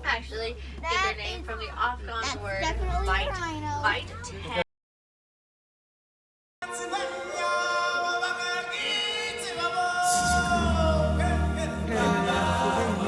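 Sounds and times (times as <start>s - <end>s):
choir singing long notes: 6.6s - 13.0s
heavy low bass: 10.2s - 13.0s.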